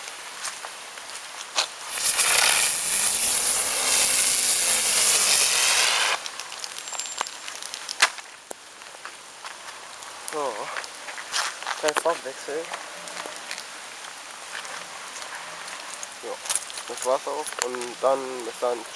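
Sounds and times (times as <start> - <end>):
firework pops and crackles: 1.6 - 8.7
firework rushing hiss: 1.8 - 6.7.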